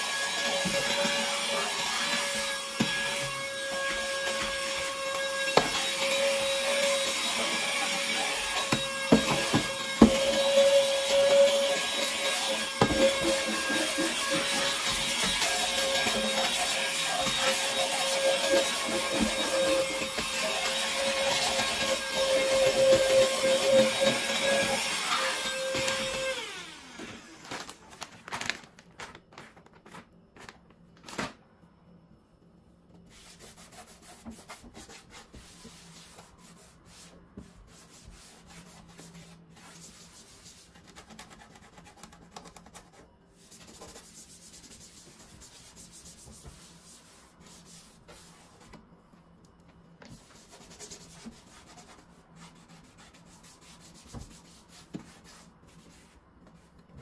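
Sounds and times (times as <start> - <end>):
food packets rustling: 27.0 - 31.4.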